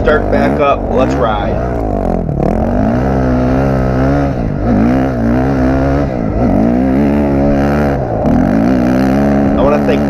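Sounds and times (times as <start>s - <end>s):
dirt bike engine revving: 0.0s - 10.0s.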